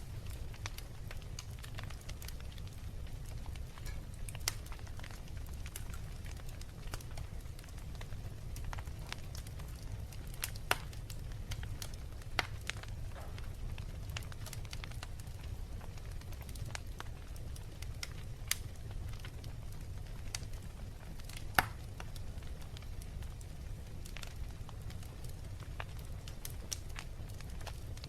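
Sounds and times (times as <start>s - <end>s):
low steady fire rumble: 0.0s - 28.0s
wood fire crackling and popping: 0.0s - 28.0s.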